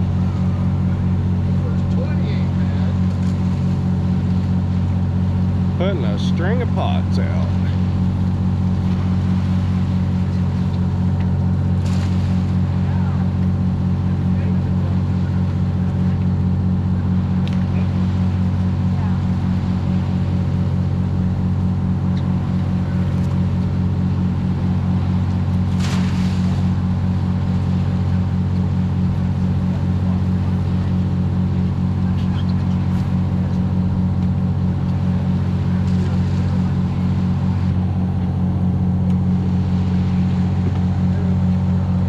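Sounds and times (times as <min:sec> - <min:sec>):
boat engine droning: 0:00.0 - 0:42.0.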